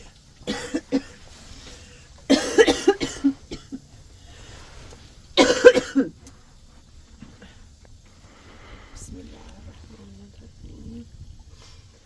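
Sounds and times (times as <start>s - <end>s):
woman coughing: 0.5s - 1.2s, 2.3s - 3.8s, 5.4s - 6.1s.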